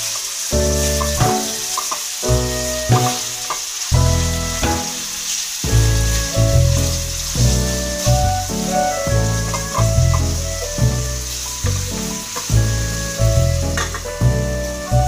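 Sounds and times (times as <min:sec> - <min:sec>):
meat sizzling in a pan: 0:00.0 - 0:15.0
music with heavy bass: 0:04.0 - 0:05.0, 0:05.7 - 0:15.0.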